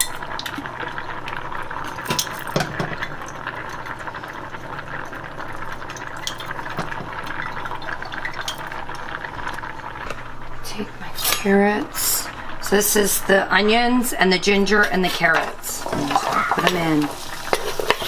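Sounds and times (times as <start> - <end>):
bubbling crackling sizzle: 0.0 - 18.0
utensils clinking on pans: 2.0 - 3.0, 14.7 - 18.0.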